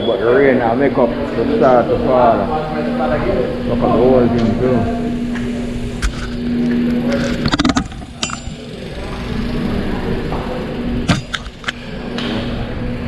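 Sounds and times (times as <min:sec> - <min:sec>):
bicycle ride noise: 0:00.0 - 0:13.0
bicycle clicks and rattles: 0:05.4 - 0:09.8, 0:11.0 - 0:11.9.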